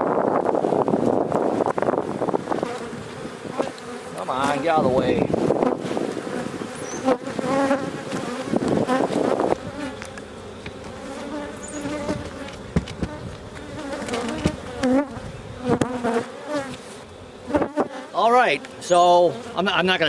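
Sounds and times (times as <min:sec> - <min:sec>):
honey bees buzzing: 0:00.0 - 0:20.0
sharp knocks: 0:12.1 - 0:13.2.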